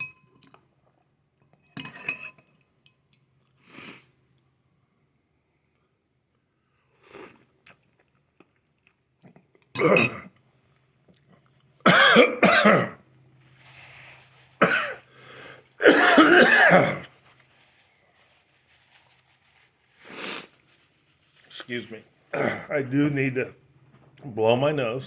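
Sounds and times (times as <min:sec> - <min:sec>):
man clearing throat: 0:11.9 - 0:13.0, 0:14.6 - 0:15.0, 0:15.8 - 0:17.1, 0:22.3 - 0:22.8
man coughing: 0:11.9 - 0:13.0, 0:14.6 - 0:15.1, 0:15.8 - 0:17.1, 0:22.3 - 0:22.8.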